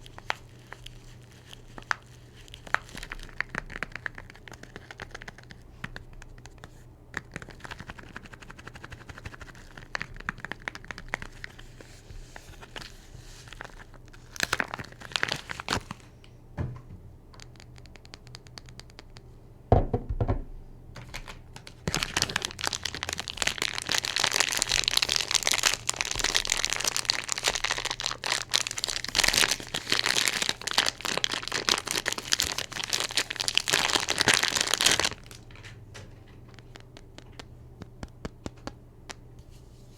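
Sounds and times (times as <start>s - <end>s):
wrappers crinkling and tearing: 0.0s - 5.6s, 7.3s - 16.1s, 21.1s - 37.4s
low knock: 19.7s - 20.6s.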